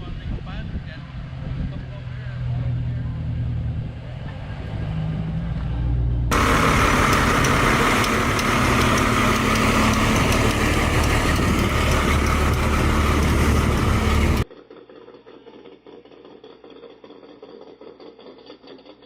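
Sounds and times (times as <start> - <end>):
car engine idling: 6.3 - 14.5.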